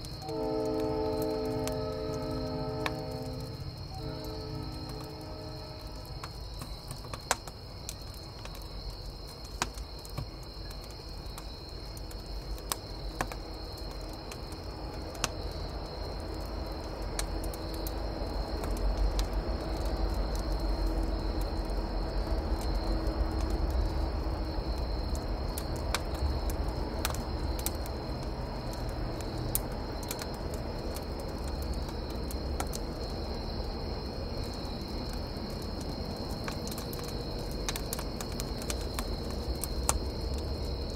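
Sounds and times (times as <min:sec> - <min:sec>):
distant train rumbling: 0:00.0 - 0:07.4
campfire crackling: 0:00.0 - 0:40.9
crickets chirping: 0:00.0 - 0:40.9.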